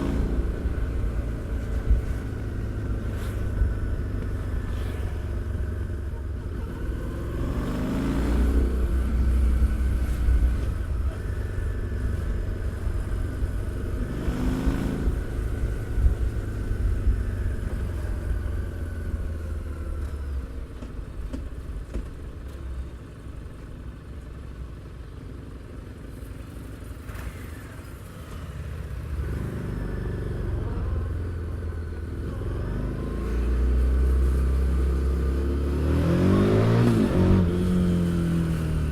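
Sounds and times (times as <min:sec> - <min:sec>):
motorcycle engine revving: 0:00.0 - 0:19.4, 0:28.2 - 0:38.9.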